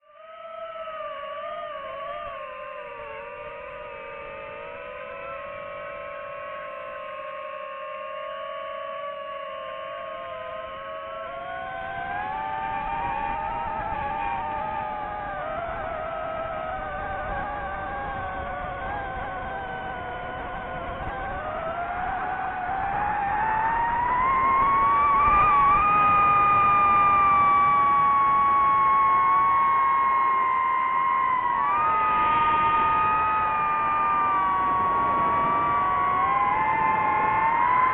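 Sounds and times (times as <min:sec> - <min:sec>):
quadcopter motors whining: 0:31.4 - 0:37.9.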